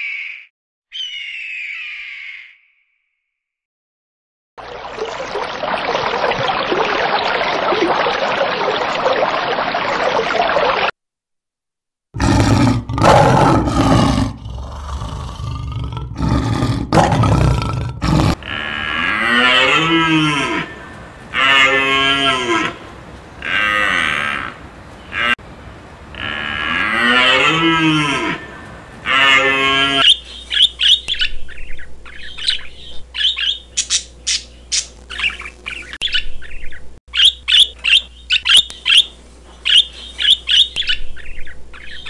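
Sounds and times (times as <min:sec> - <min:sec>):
cattle mooing: 0:12.2 - 0:22.8, 0:23.4 - 0:25.4, 0:26.1 - 0:30.0
noisy hiss: 0:20.3 - 0:29.7.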